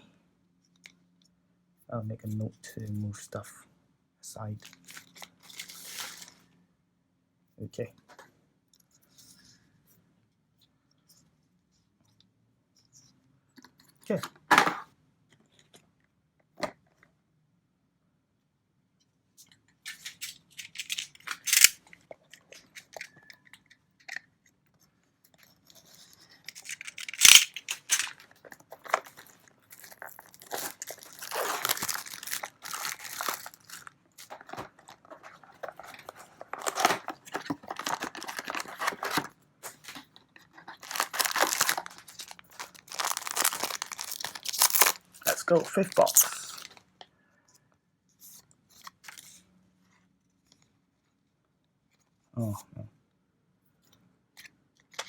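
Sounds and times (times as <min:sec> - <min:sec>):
plastic wrap crinkling and tearing: 0:04.6 - 0:06.4, 0:19.9 - 0:21.8, 0:25.7 - 0:46.8.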